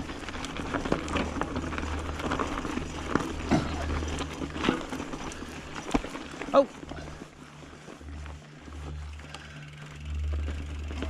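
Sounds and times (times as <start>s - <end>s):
bike rattling over dirt: 0.0s - 11.0s.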